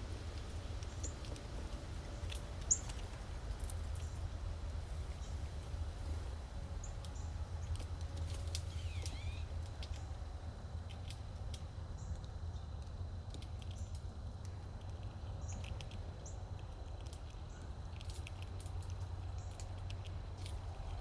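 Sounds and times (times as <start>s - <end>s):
steady low rumble: 0.0s - 21.0s
squirrel clicks and scratches: 0.2s - 21.0s
faint high bird chirps: 8.7s - 9.5s.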